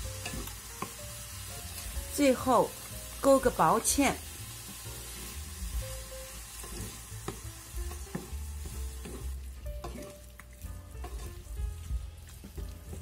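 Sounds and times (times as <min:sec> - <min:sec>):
stir-fry sizzling in a frying pan: 0:00.0 - 0:13.0
wooden spatula stirring: 0:05.0 - 0:13.0.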